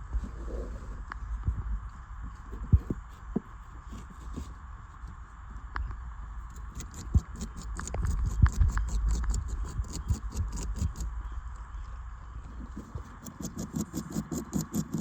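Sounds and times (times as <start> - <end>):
beaver gnawing on a branch: 6.5 - 11.1, 12.8 - 15.0.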